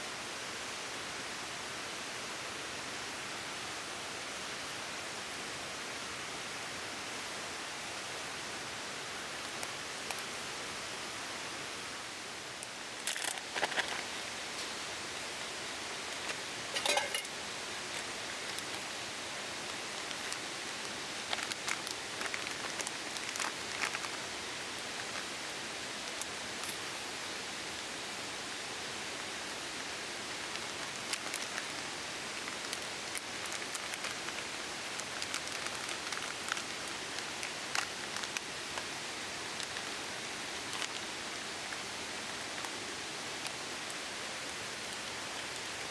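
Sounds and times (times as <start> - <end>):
steady hiss: 0.0 - 45.9
camp cooking gear clicking and knocking: 16.2 - 18.8.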